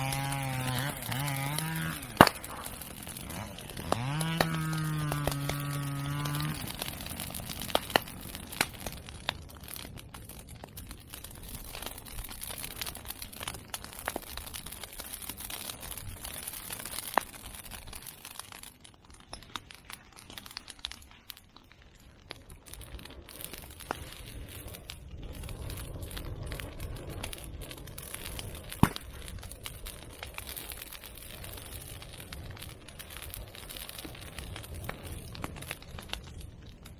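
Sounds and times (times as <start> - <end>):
burn pile crackling: 0.0 - 36.9
rush of flame: 0.0 - 36.9
sharp pops: 0.2 - 6.6, 28.7 - 29.3.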